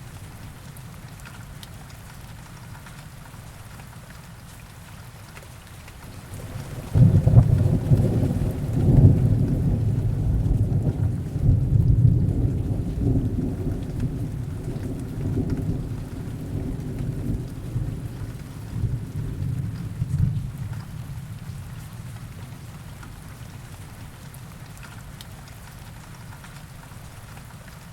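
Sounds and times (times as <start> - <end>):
heavy rain: 0.0 - 27.9
thunder rolling: 6.0 - 21.4.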